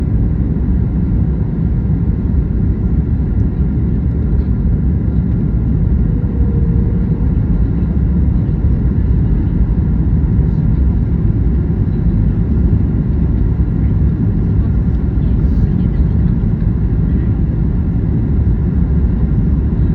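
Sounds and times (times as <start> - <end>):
airliner cabin engine rumble: 0.0 - 19.9
faint tone: 6.0 - 8.5.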